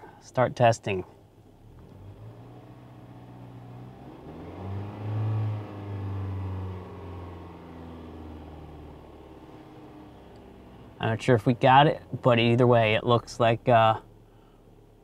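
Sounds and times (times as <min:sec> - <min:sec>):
car engine revving: 0:01.6 - 0:12.5.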